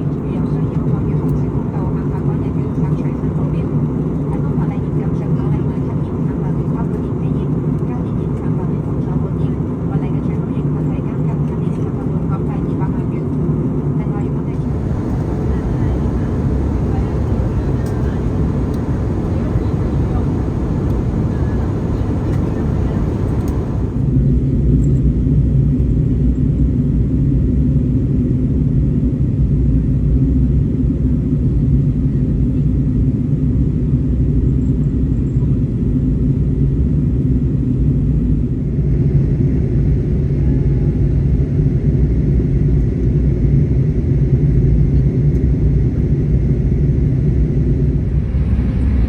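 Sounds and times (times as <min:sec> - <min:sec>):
airliner cabin rumble: 0:00.0 - 0:24.2.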